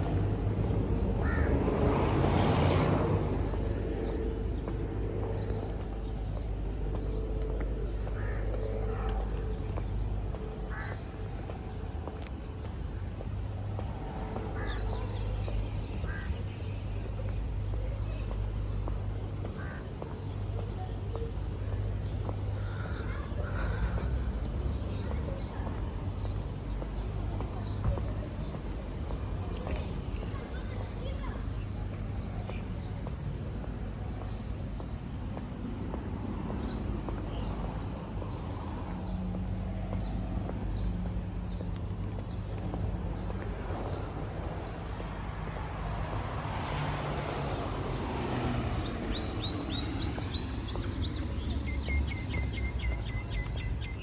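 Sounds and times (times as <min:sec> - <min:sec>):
faint footsteps: 0:03.0 - 0:46.1.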